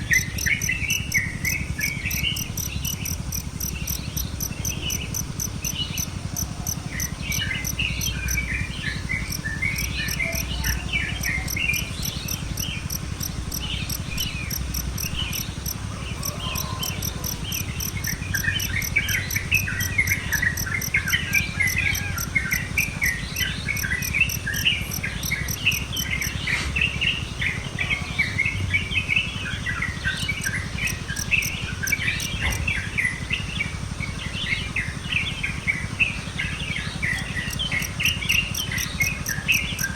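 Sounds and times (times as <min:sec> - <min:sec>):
insect high pulsing: 0:00.0 - 0:39.9
songbirds chirping: 0:00.0 - 0:39.9.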